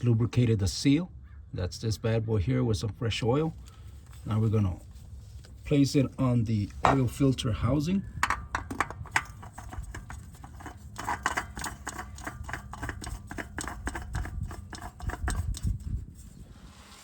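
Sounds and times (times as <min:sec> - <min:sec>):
oil filter clicks and scrapes: 0:03.5 - 0:17.0.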